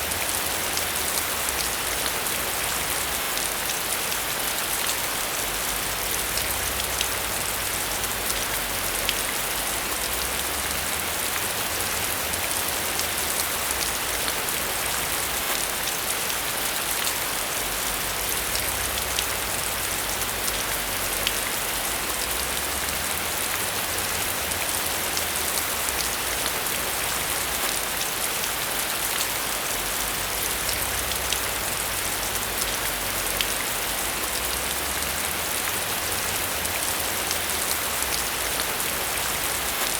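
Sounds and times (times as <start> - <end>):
rain falling on a surface: 0.0 - 39.9.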